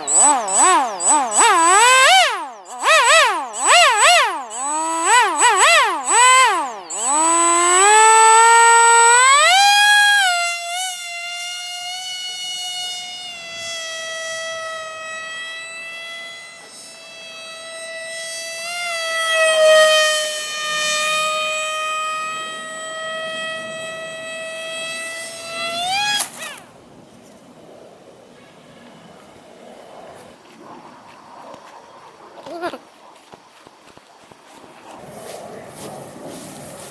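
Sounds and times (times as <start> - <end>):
electric motor whining: 0.0 - 26.9.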